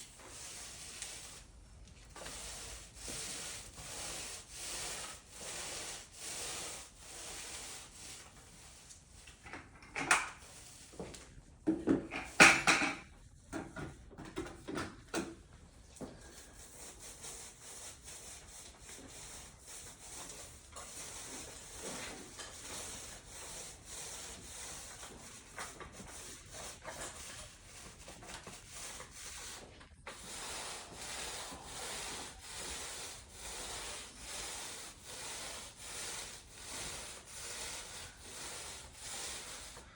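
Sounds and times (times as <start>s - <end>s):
rubbing on concrete slab: 2.1s - 8.8s, 16.2s - 39.9s.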